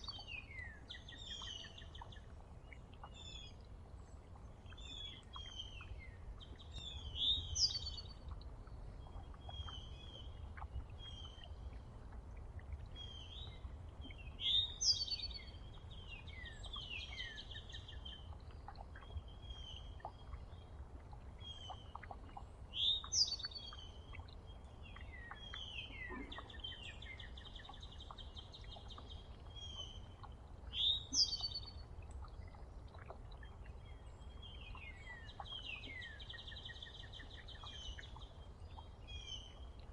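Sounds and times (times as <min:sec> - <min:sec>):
bird chirps and buzzy trills: 0:00.0 - 0:39.9
low steady rumble: 0:00.0 - 0:39.9.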